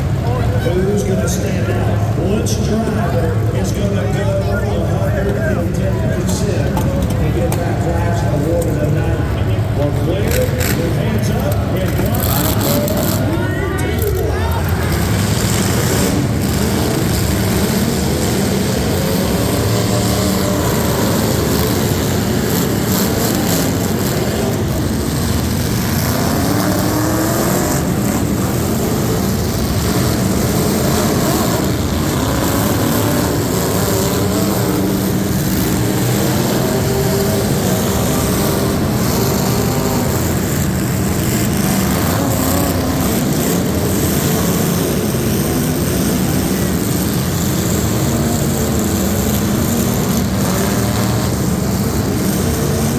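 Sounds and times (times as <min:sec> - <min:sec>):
truck engines revving: 0:00.0 - 0:52.9.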